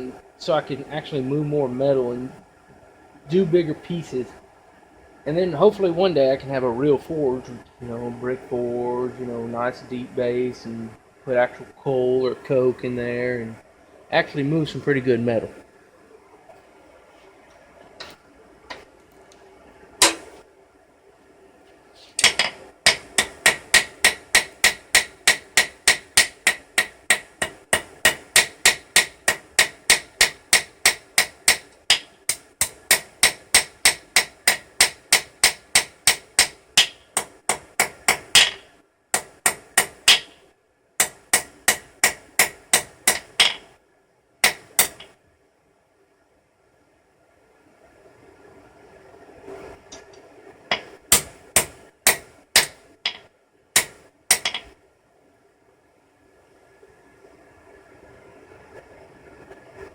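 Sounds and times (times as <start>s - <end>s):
hammer striking steel on anvil: 20.0s - 20.4s, 22.2s - 38.6s, 39.2s - 40.4s, 41.0s - 43.6s, 44.4s - 45.1s, 50.7s - 54.7s.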